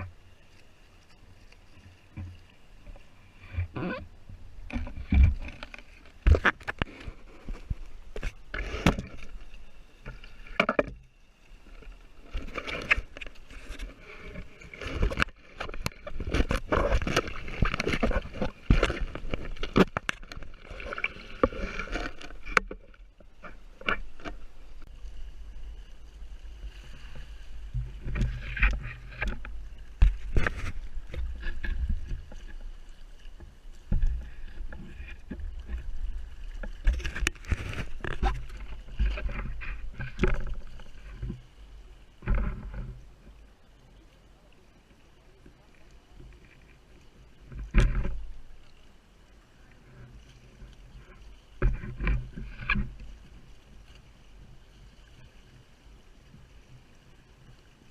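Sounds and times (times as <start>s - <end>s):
water slapping against kayak hull: 12.3s - 24.9s.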